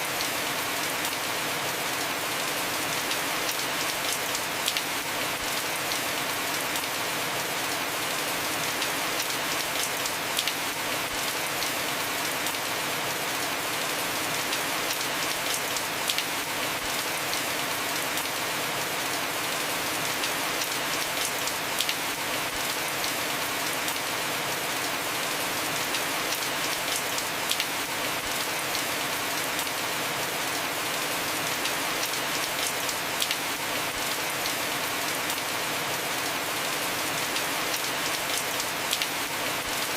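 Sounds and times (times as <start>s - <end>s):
heavy rain on a roof: 0.0s - 39.9s.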